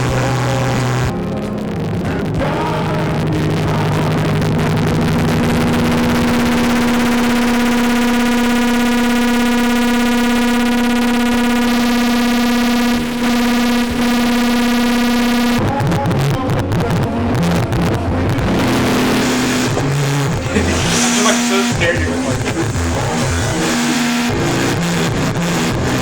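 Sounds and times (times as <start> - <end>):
electronic feedback drone: 0.0 - 26.0.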